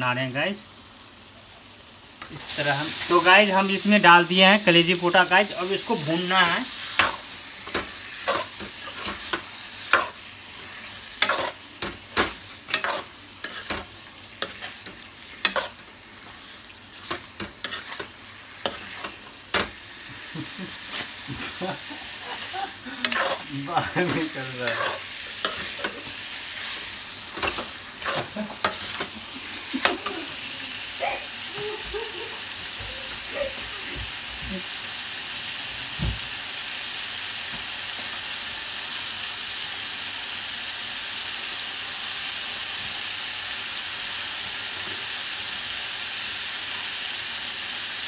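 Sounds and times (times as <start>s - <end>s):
meat sizzling in a pan: 0.0s - 48.0s
spoon scraping and knocking pan: 7.0s - 10.2s, 11.1s - 15.8s, 17.0s - 19.8s, 23.0s - 29.1s.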